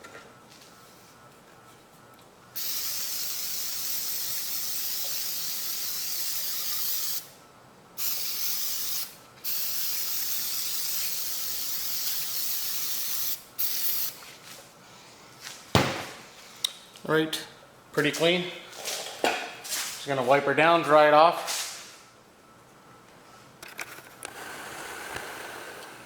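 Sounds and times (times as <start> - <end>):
aerosol can spraying: 2.6 - 7.3, 8.0 - 14.2.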